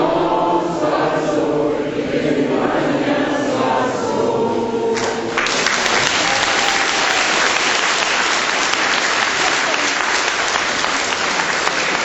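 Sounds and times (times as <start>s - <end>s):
group singing a chant: 0.0s - 7.2s
crowd applause: 5.0s - 12.0s.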